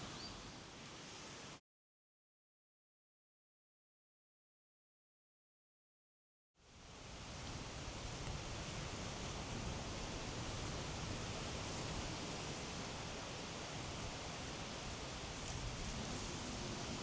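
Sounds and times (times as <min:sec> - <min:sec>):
wind: 0:00.0 - 0:01.6, 0:06.6 - 0:17.0.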